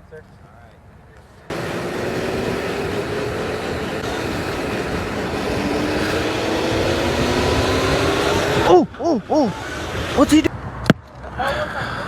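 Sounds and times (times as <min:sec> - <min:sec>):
motor whine rising: 0:01.5 - 0:10.5
wind on microphone: 0:01.5 - 0:10.8.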